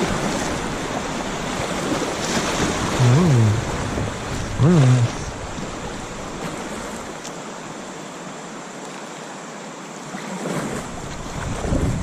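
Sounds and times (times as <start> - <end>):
wind buffeting microphone: 0.0 - 6.0, 10.8 - 12.0
river water rushing: 0.0 - 12.0.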